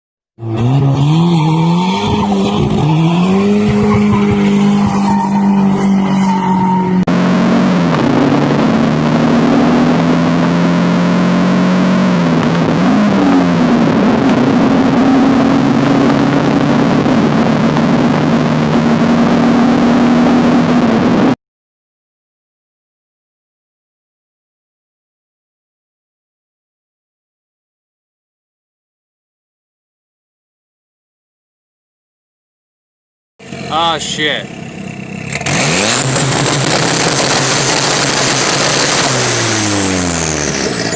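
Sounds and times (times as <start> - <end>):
road and wind noise: 0.4 - 21.4, 33.4 - 40.9
turbocharged engine at full throttle: 0.4 - 21.4, 33.4 - 40.9.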